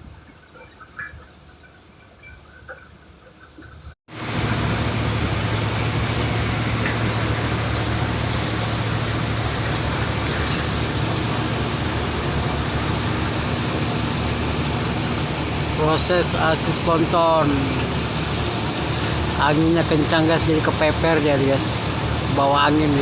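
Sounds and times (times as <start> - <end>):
constant rushing noise: 3.0 - 23.0
boat engine humming: 4.1 - 23.0.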